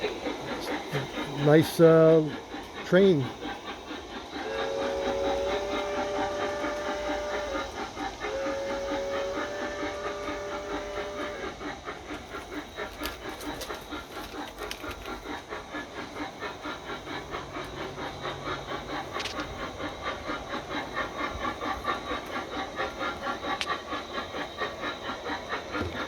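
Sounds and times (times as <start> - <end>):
steam locomotive chuffing: 0.0 - 26.0
two-note train whistle: 4.4 - 11.4.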